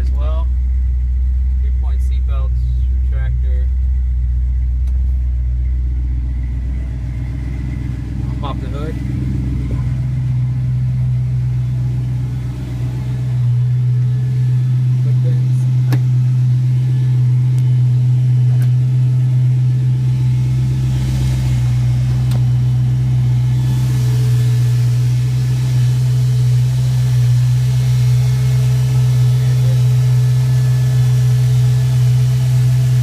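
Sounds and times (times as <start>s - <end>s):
car engine running with low rumble: 0.0s - 33.0s.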